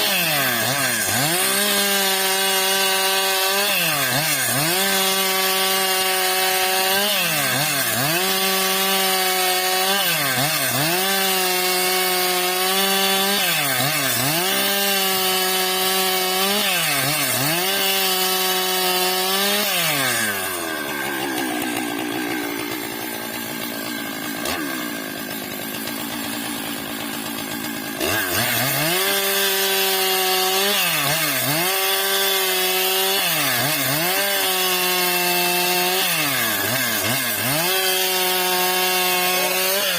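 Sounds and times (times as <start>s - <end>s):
chainsaw ripping a log: 0.0s - 39.9s.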